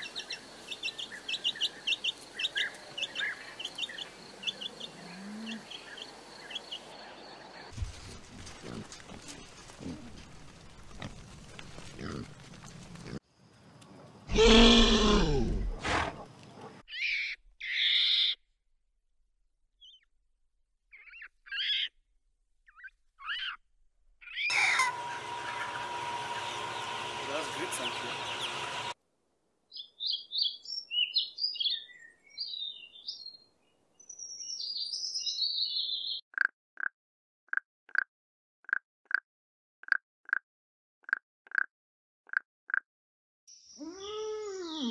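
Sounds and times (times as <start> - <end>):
robin singing: 0.0 - 7.6, 26.3 - 28.9, 29.7 - 36.2
pigs snuffling in straw: 7.8 - 13.2.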